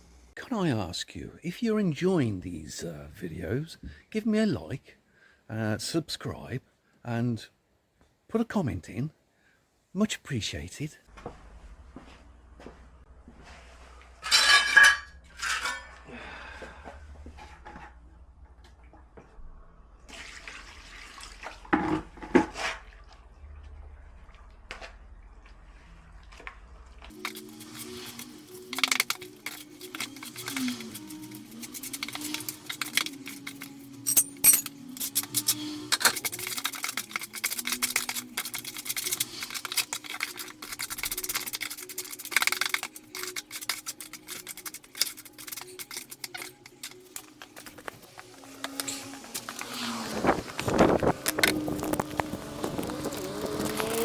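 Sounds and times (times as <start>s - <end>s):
water splashing and sloshing: 20.1s - 27.2s
faint background music: 23.2s - 54.0s
trowel scraping concrete: 27.1s - 54.0s
wind rumble on microphone: 50.1s - 53.3s.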